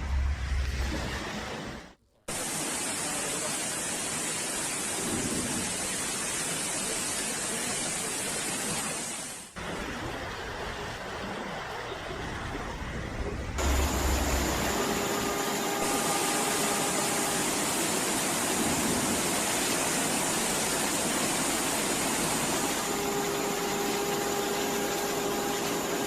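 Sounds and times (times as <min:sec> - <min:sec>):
heavy rain and floodwater rushing: 0:00.7 - 0:26.0.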